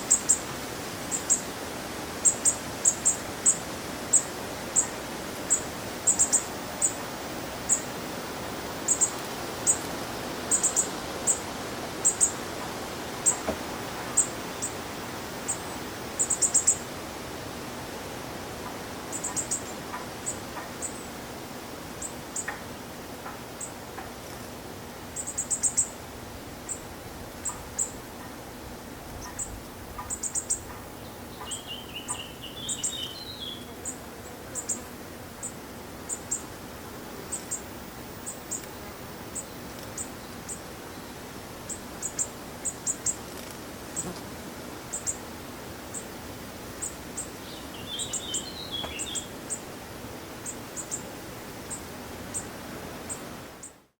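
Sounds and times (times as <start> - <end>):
bird warbling phrases: 29.2 - 32.4
high-pitched bird calls: 29.2 - 33.7.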